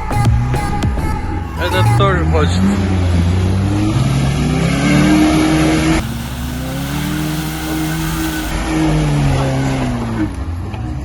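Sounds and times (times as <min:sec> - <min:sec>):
vehicle engine revving: 0:02.7 - 0:08.6.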